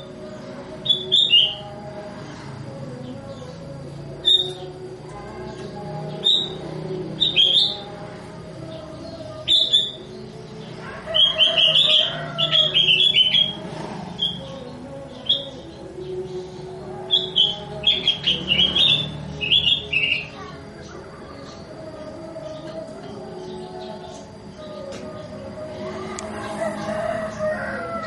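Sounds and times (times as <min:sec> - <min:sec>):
bulbul chirping song: 0:00.0 - 0:28.0.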